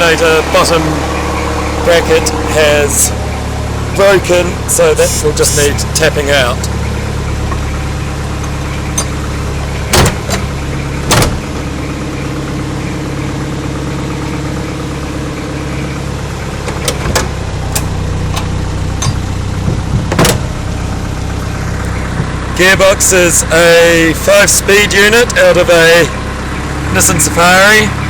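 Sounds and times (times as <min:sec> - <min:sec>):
diesel engine idling: 0:00.0 - 0:28.0
sharp knocks: 0:09.9 - 0:11.6, 0:16.7 - 0:20.6.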